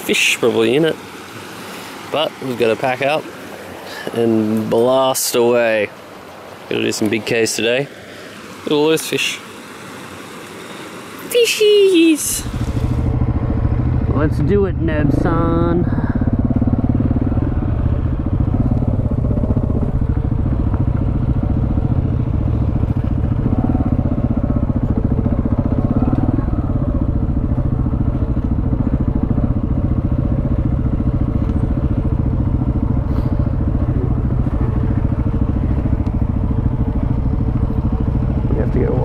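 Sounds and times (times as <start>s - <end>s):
motorcycle engine running: 12.2s - 39.0s.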